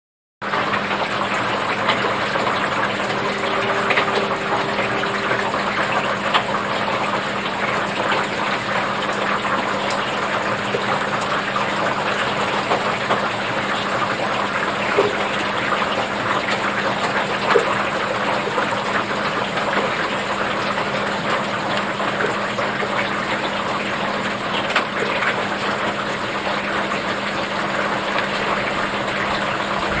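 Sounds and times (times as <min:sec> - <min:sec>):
low steady hum: 0:01.0 - 0:16.4.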